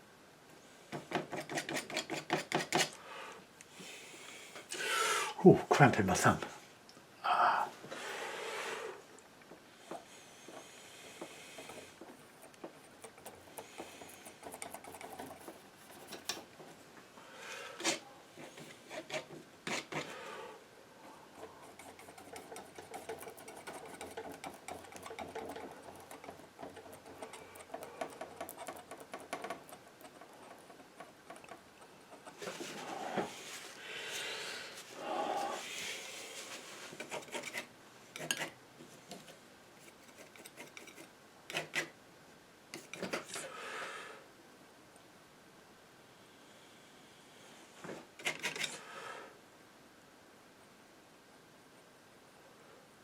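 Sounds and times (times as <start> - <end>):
painting knife scraping paint: 1.0 - 3.0, 10.5 - 16.5, 17.8 - 20.3, 21.3 - 33.0, 36.4 - 38.6, 39.8 - 42.0, 42.7 - 43.5, 48.2 - 48.8.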